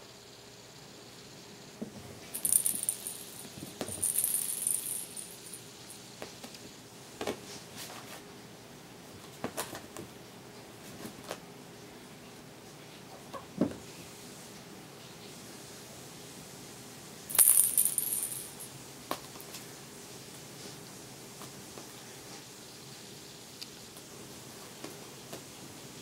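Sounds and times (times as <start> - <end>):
jingling toy: 2.4 - 5.6, 17.3 - 18.6.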